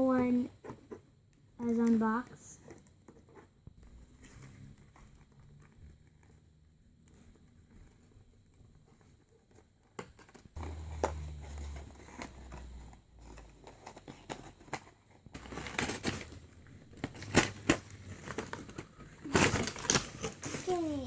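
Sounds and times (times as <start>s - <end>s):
toy packaging clicks and rustles: 9.5s - 21.0s.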